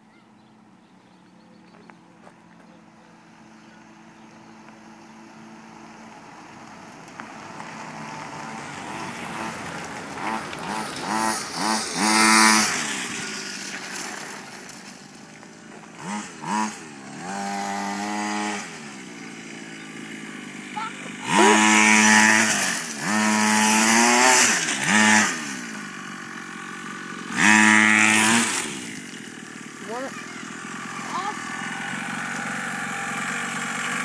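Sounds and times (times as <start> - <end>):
motocross bike engine revving: 7.1 - 34.0.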